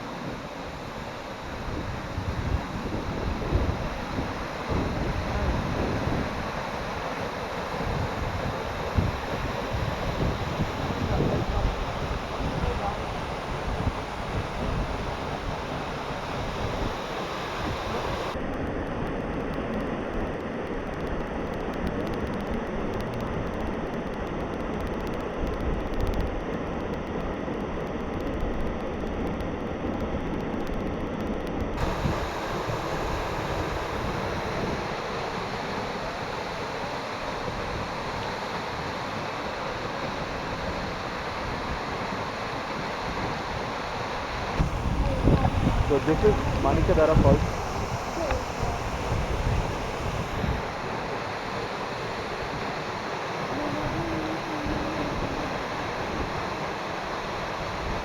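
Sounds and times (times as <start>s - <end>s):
wind: 0.0s - 58.0s
rushing water: 31.8s - 58.0s.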